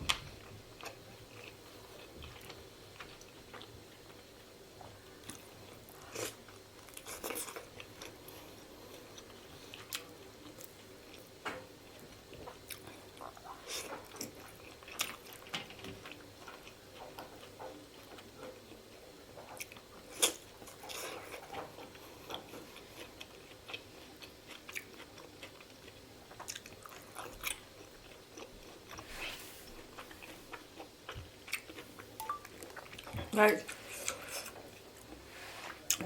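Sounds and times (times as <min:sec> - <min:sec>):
chewing and biting: 0:12.0 - 0:29.1, 0:29.7 - 0:33.2.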